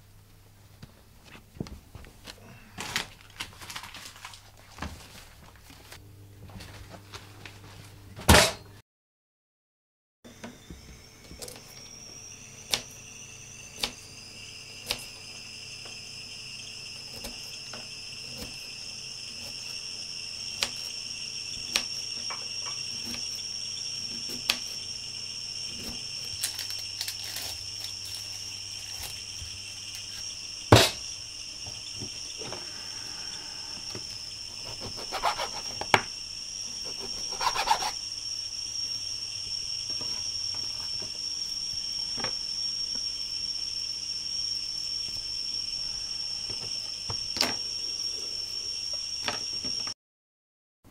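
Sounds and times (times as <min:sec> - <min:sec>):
high-pitched ringing tone: 0:10.3 - 0:49.9.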